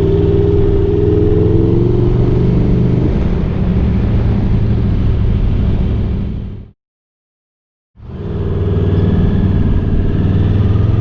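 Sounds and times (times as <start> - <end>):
motorcycle engine deep rumble: 0.0 - 6.7.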